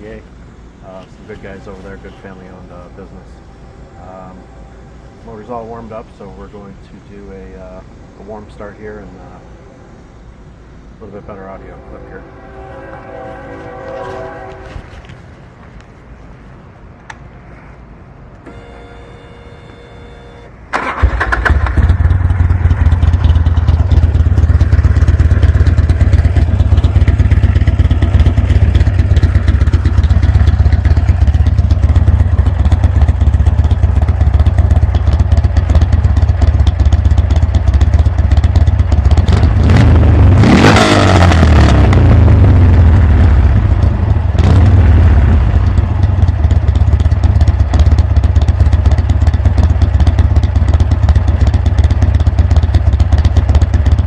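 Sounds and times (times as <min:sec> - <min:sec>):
brief steady tone: 0:01.2 - 0:05.6, 0:18.4 - 0:20.6
engine throttle blip: 0:18.4 - 0:54.0
motorcycle engine idling: 0:20.8 - 0:40.4, 0:42.2 - 0:54.0.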